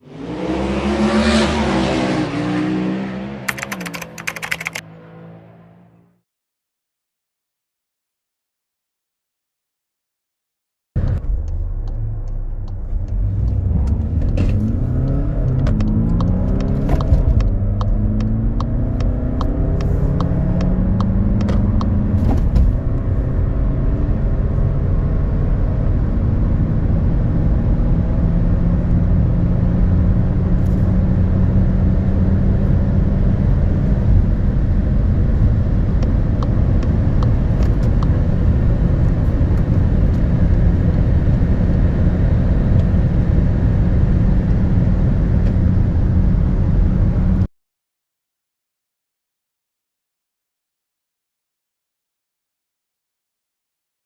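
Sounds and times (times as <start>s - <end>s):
car engine accelerating hard: 0.0s - 3.8s, 11.0s - 47.5s.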